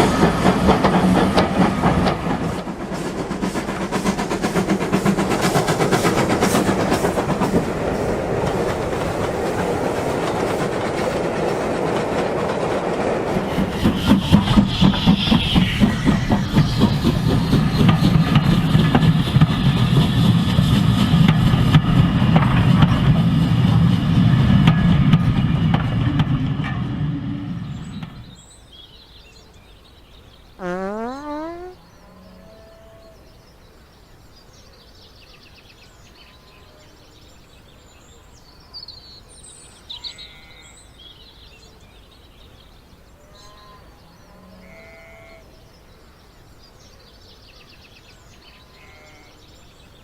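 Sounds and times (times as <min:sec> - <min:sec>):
train wheels clickety-clack: 0:00.0 - 0:28.7.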